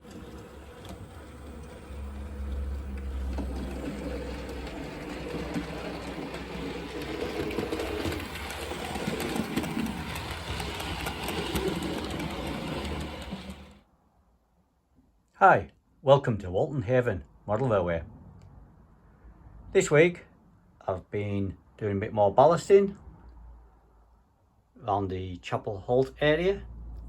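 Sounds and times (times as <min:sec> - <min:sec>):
model train running on track: 0:00.0 - 0:13.8.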